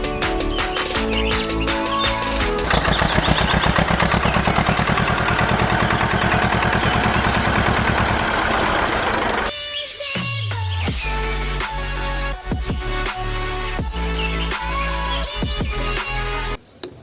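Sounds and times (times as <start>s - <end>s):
small motor pulsing: 2.7s - 9.5s.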